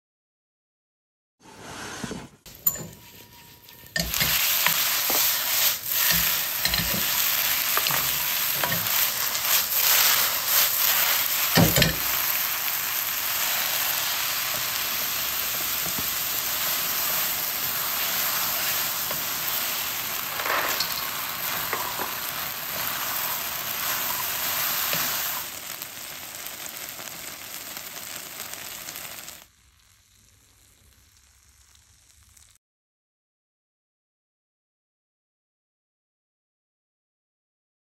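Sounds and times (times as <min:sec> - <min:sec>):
chicken sizzling in a wok: 0:02.5 - 0:32.6.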